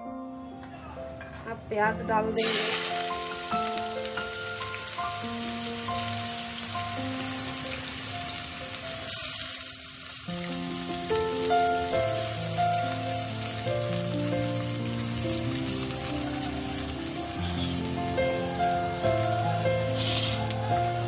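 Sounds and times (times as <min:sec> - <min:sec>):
background music of held notes: 0:00.0 - 0:21.0
onions sizzling in oil: 0:02.4 - 0:21.0.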